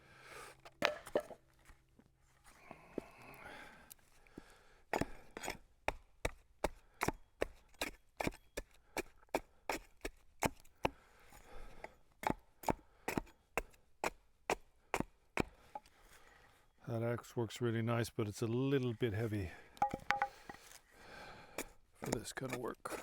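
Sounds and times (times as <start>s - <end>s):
axe striking wood: 0.8s - 1.4s, 19.8s - 20.6s.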